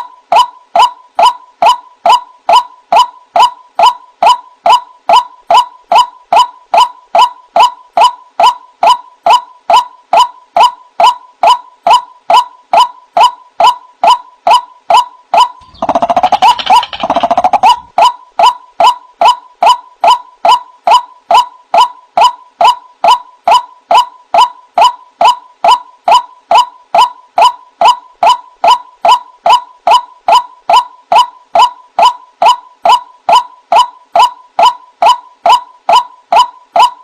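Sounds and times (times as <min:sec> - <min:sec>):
waterhen calling: 0:15.6 - 0:17.9.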